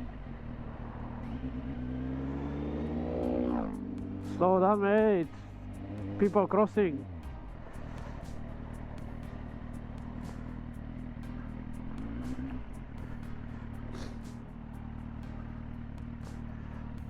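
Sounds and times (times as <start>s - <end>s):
motorcycle engine at low revs: 0.0s - 17.0s.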